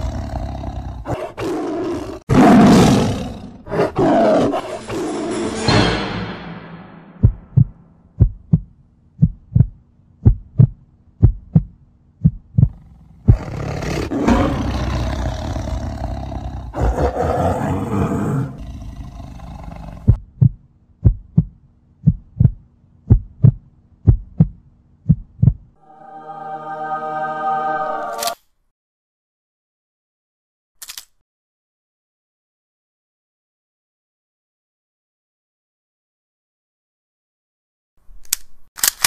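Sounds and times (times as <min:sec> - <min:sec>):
heartbeat thumps: 0:07.2 - 0:13.5, 0:20.0 - 0:25.8
werewolf roar: 0:13.4 - 0:20.0
held musical tone: 0:25.8 - 0:28.4.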